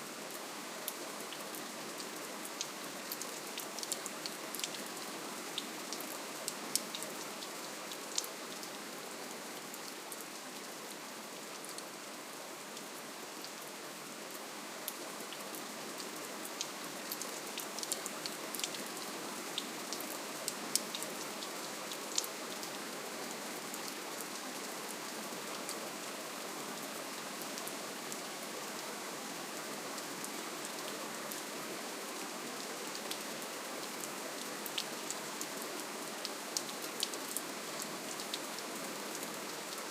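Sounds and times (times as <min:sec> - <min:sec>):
gentle rain: 0:00.0 - 0:39.9
raindrops ticking on surface: 0:02.0 - 0:04.8.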